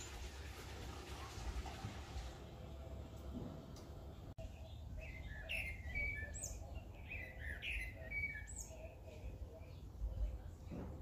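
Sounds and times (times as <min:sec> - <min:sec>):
birds chirping: 0:03.7 - 0:11.0.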